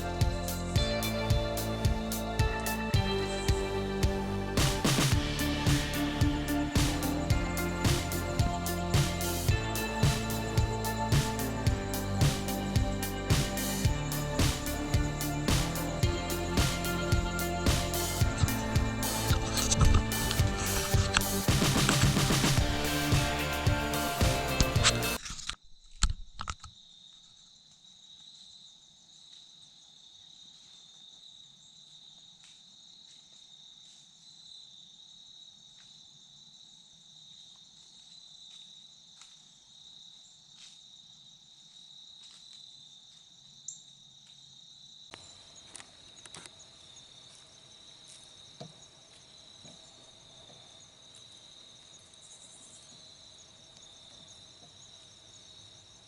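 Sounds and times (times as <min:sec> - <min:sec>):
crickets trilling: 0:05.0 - 0:24.0, 0:24.8 - 0:56.0
sharp clicks: 0:17.8 - 0:22.6.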